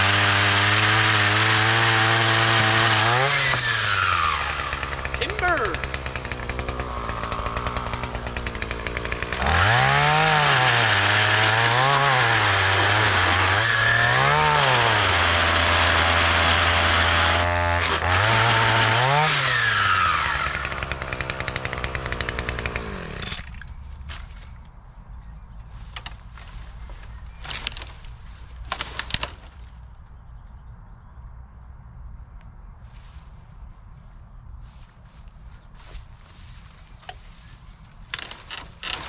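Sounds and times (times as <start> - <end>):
chainsaw revving: 0.0 - 23.5.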